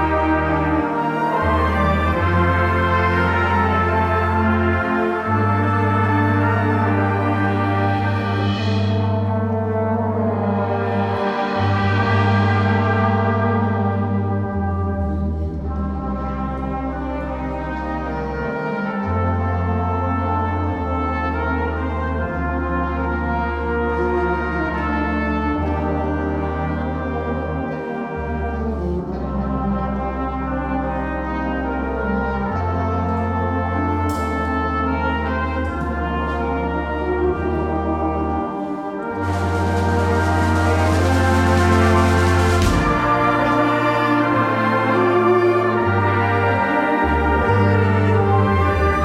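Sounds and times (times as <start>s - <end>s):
sustained low bass notes: 0.0s - 49.0s
wind band playing chords: 0.0s - 49.0s
bass line: 39.0s - 49.0s.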